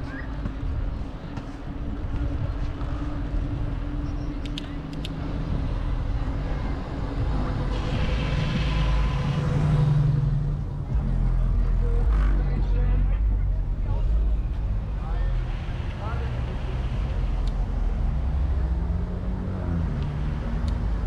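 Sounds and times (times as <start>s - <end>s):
traffic rumble: 0.0s - 21.0s
motor vehicle passing: 5.7s - 12.8s.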